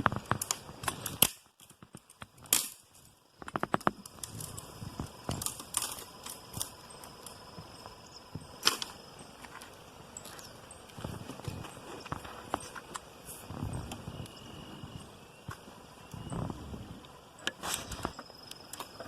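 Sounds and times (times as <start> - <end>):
campfire twigs crackling: 0.0 - 19.0.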